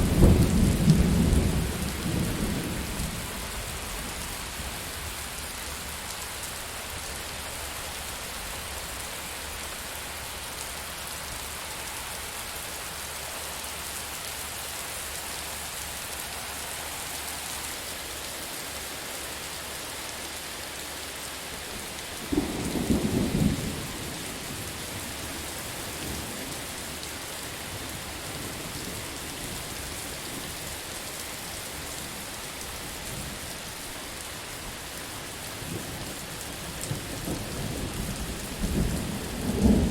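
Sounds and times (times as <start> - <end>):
close thunderclap: 0.0 - 3.2, 22.3 - 24.6, 36.9 - 39.9
heavy rain hissing: 0.0 - 39.9.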